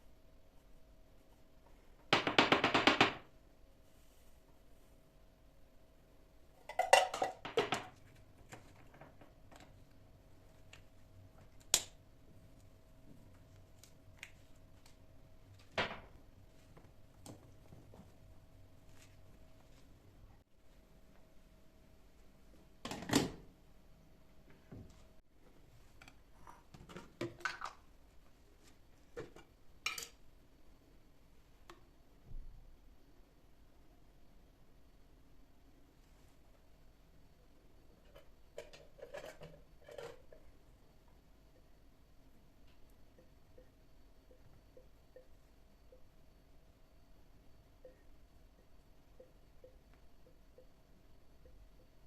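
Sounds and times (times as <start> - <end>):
faint steady hum: 2.7 - 52.0
household objects clattering: 6.6 - 9.4.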